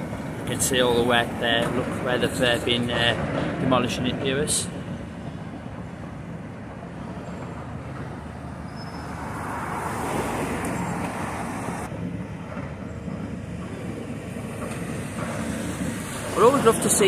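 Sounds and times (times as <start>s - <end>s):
road traffic: 0.0s - 17.0s
vehicle passing close by: 7.3s - 12.1s.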